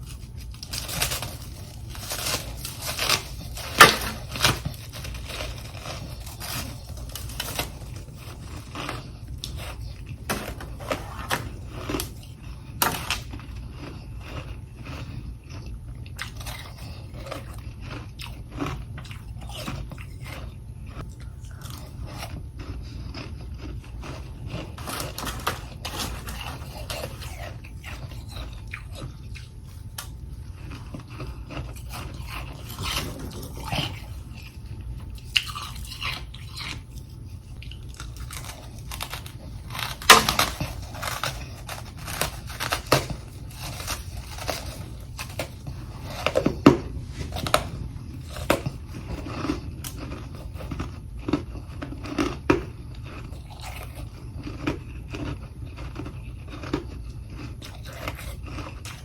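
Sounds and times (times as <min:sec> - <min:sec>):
person crunching frost: 0:00.0 - 0:59.0
low hum: 0:19.0 - 0:51.2.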